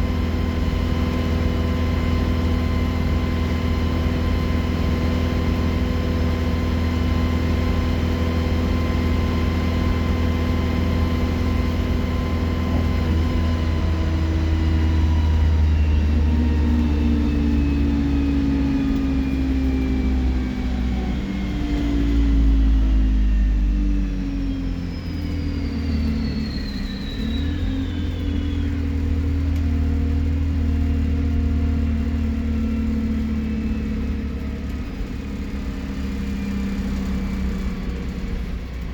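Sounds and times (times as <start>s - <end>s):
bus diesel engine running: 0.0s - 38.9s
high turbo whistle: 24.4s - 29.2s.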